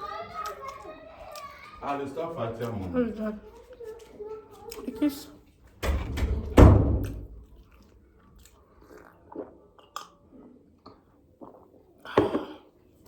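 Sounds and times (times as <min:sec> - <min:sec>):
chewing and biting: 0:00.3 - 0:05.3, 0:07.4 - 0:11.8
loud thump: 0:05.8 - 0:07.4
wet mouth clicks: 0:07.6 - 0:12.6.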